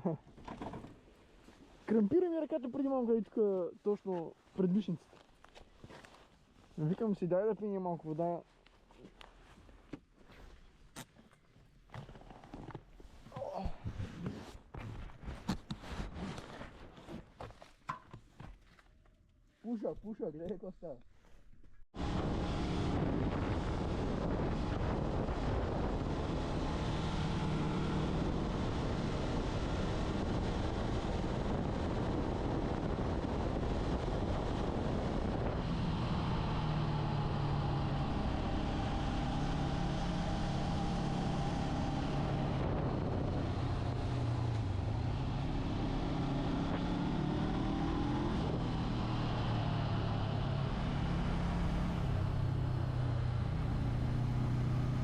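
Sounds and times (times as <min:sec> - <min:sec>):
wind rush on microphone: 0:22.0 - 0:50.7.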